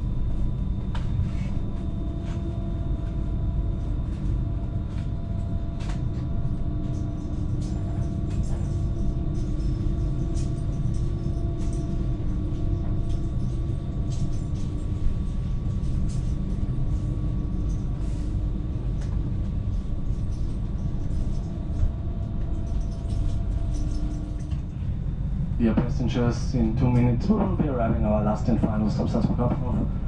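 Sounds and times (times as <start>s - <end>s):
train rolling rumble: 0.0s - 30.0s.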